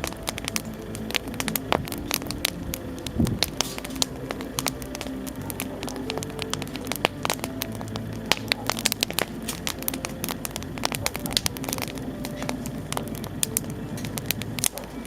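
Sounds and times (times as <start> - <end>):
bonfire crackling and popping: 0.0 - 15.0.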